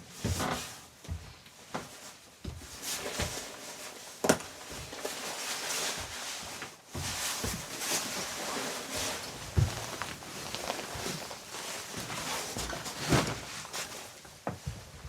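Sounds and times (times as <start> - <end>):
rustling and handling noises: 2.8 - 14.8
dull thumps: 9.0 - 13.9.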